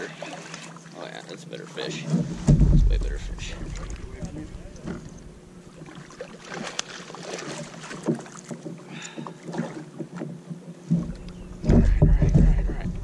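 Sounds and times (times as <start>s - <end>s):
gear knocking on plastic kayak: 8.0s - 13.0s.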